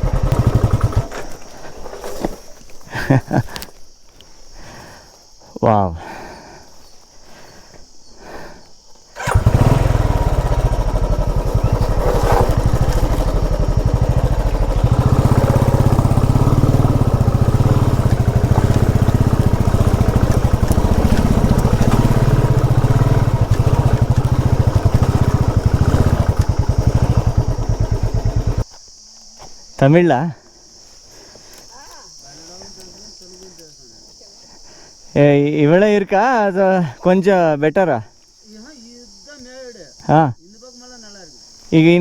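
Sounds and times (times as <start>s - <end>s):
motorcycle engine running: 0.0s - 1.2s, 9.2s - 28.6s.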